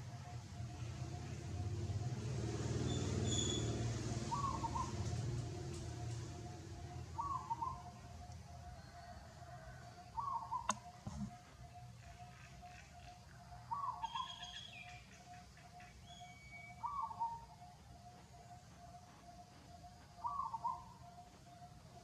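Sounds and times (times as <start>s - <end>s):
bird repeating monotonous note: 2.8s - 22.0s
bird call with falling tail: 13.7s - 15.1s.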